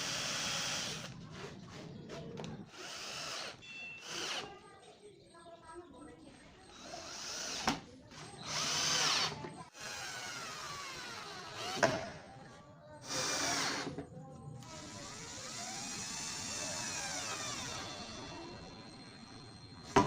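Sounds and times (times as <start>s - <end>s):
power drill whining: 0.0s - 1.5s, 2.4s - 4.6s, 6.7s - 11.9s, 13.0s - 14.0s, 14.6s - 20.0s.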